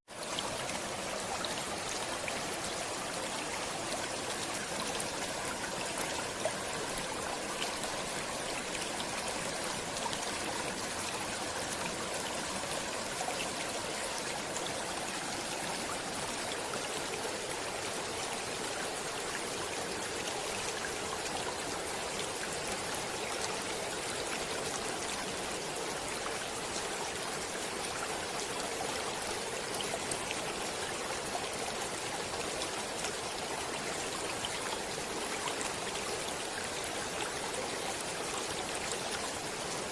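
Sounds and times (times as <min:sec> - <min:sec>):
stream rushing over rocks: 0:00.1 - 0:39.9.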